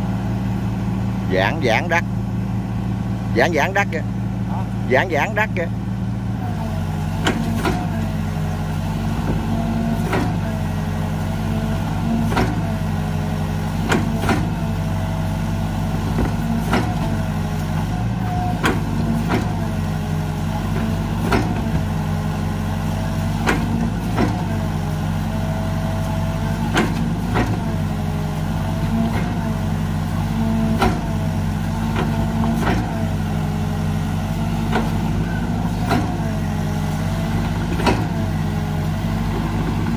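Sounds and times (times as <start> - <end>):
excavator diesel engine running: 0.0 - 39.9
hydraulic whine: 34.3 - 39.9.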